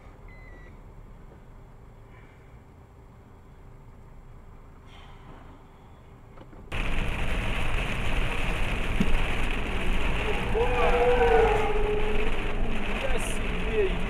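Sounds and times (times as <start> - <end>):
road and wind noise: 0.0 - 14.0
faint low rumble: 6.7 - 14.0.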